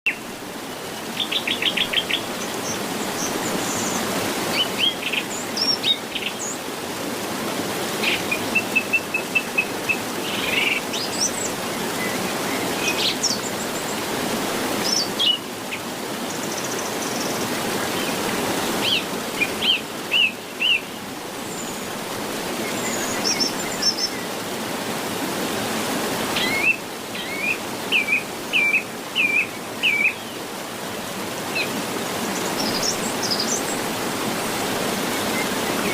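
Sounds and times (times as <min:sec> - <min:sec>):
small birds chirping: 0:31.5 - 0:34.0.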